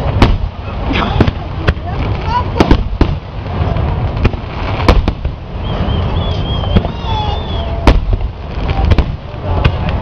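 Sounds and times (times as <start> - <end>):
fireworks bangs: 0.0 - 10.0
high wavering whistle: 5.6 - 7.8.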